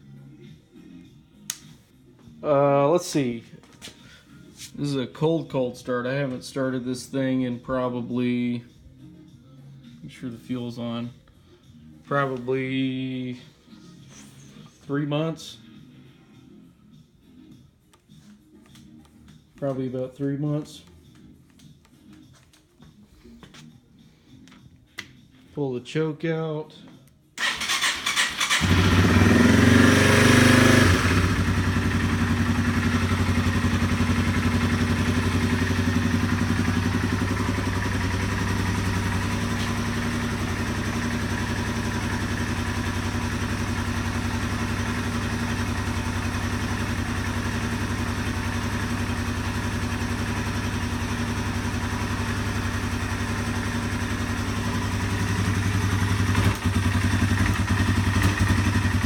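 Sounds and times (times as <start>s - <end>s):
motorcycle engine idling: 27.4s - 59.0s.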